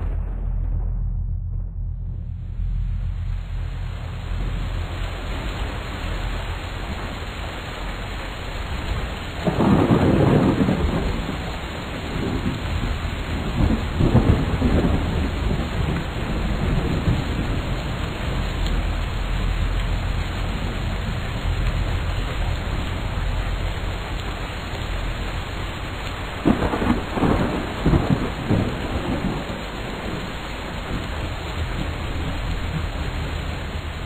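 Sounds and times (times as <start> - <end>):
loud thunder peal: 0.0 - 7.3, 9.3 - 34.0
thunder rumbling: 0.0 - 34.0
steady rain: 2.0 - 34.0.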